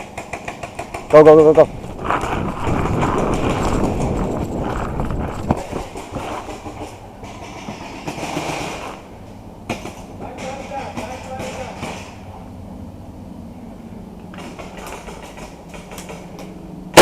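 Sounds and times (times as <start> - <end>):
gear rattling while running: 0.1 - 9.0.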